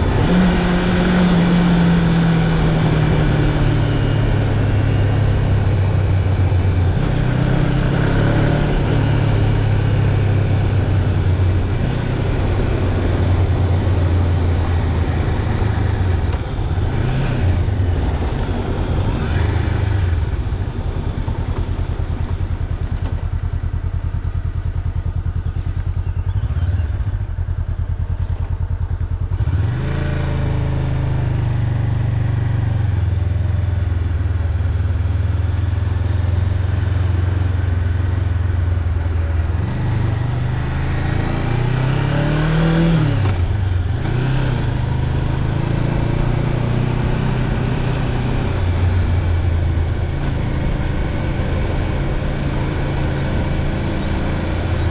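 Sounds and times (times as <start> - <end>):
wind noise: 0.0 - 23.7
motorcycle engine running: 0.0 - 54.9.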